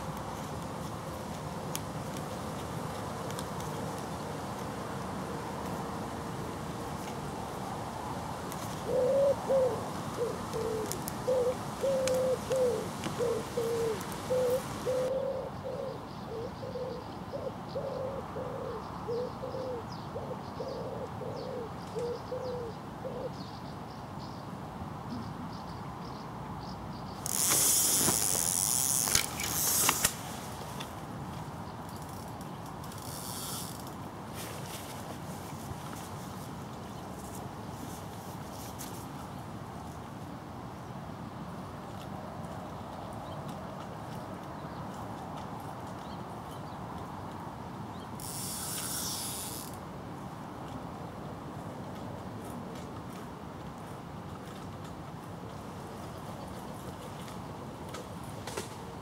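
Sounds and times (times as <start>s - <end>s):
pigeon cooing: 8.8s - 23.4s
loud rustling noise: 27.2s - 30.8s.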